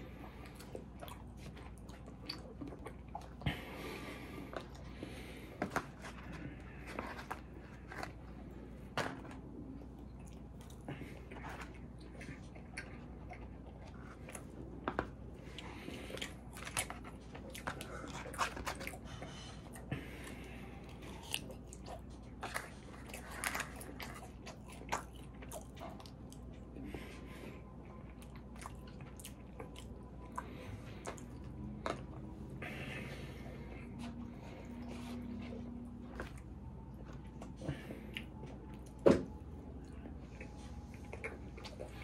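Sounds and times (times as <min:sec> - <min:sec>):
chewing with wet mouth noises: 0:00.0 - 0:42.0.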